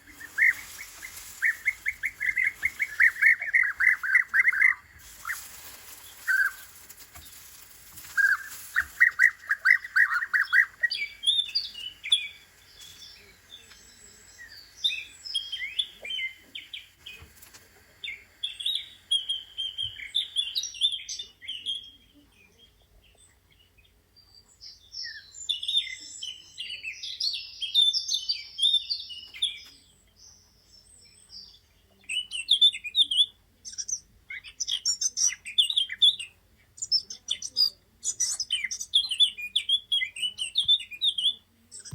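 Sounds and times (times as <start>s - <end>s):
fast buzzy bird trill: 0.0s - 17.2s, 18.0s - 21.2s
small birds chirping: 0.0s - 41.9s.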